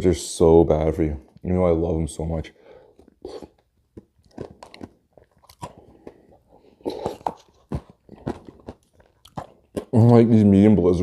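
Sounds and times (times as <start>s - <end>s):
person chewing ice cream: 2.7s - 10.3s
crunches and mouth clicks: 2.9s - 10.4s.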